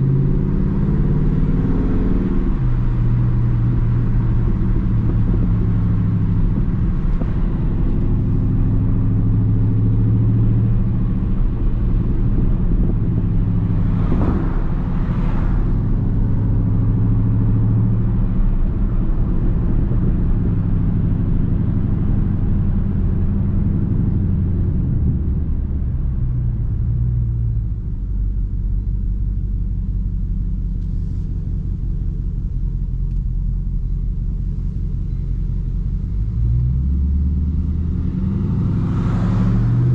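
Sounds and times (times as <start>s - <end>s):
car engine low rumble: 0.0s - 39.9s.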